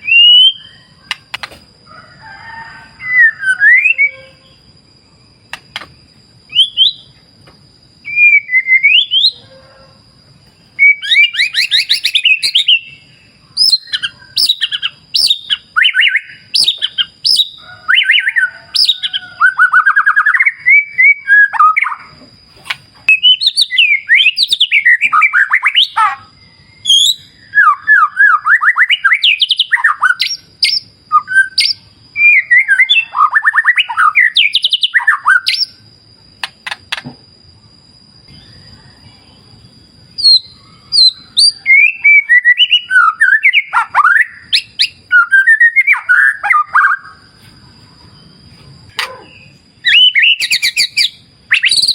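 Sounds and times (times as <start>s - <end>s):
bird singing whistled phrases: 0.0s - 1.2s, 3.0s - 4.6s, 6.5s - 7.1s, 8.0s - 9.4s, 10.8s - 13.0s, 26.8s - 35.7s, 40.2s - 47.2s, 49.0s - 51.9s
faint high steady tone: 30.8s - 43.5s.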